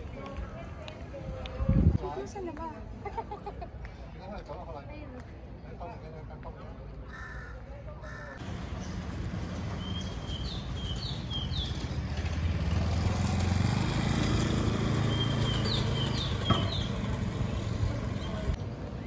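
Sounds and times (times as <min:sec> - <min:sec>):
passing motor scooter rumble: 0:08.4 - 0:18.6.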